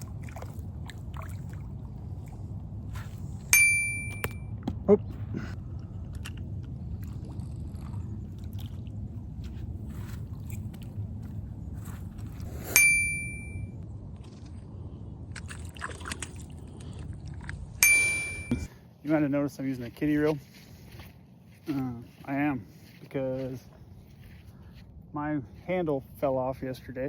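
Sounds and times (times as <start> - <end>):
steady low rumble: 0.0 - 27.0
sharp metallic dings: 3.5 - 4.5, 12.7 - 13.8, 17.8 - 18.7.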